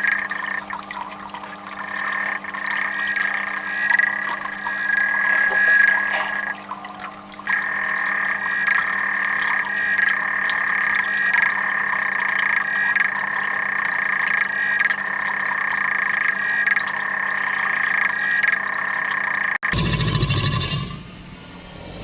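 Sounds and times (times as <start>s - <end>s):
frogs trilling in chorus: 0.0s - 19.6s.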